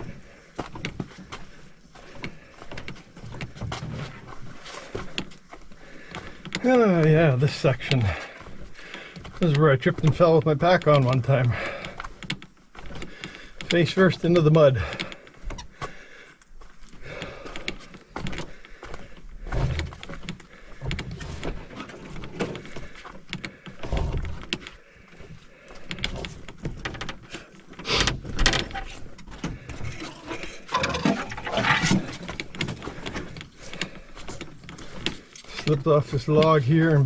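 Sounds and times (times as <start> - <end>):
footsteps through mud: 0.0 - 13.8
gear rustling and clicking: 0.0 - 37.0.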